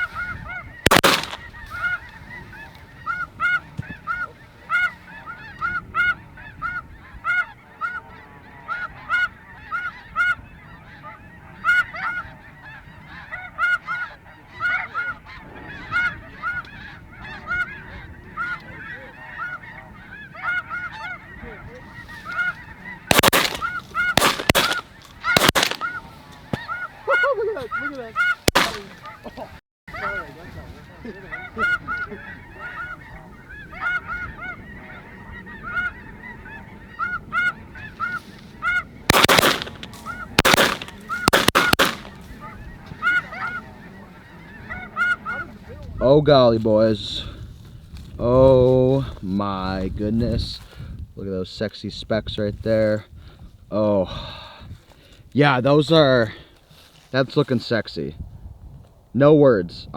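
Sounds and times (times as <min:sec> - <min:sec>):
geese honking: 0:00.0 - 0:46.1
shotgun shots: 0:00.9 - 0:01.6, 0:23.1 - 0:26.0, 0:28.4 - 0:29.0, 0:39.1 - 0:42.3.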